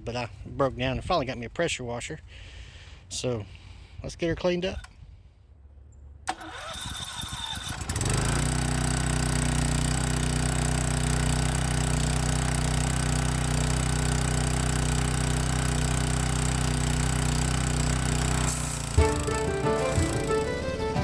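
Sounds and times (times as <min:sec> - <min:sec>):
small gasoline engine running: 0:06.3 - 0:21.0.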